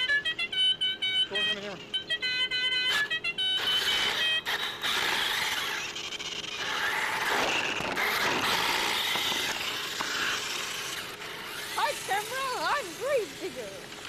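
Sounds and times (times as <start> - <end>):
toy car electric motor whining: 0.0 - 14.0
wheels hissing on ground: 4.5 - 14.0.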